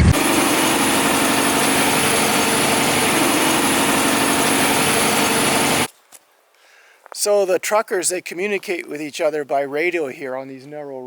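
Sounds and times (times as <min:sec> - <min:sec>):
diesel truck engine running: 0:00.0 - 0:05.9.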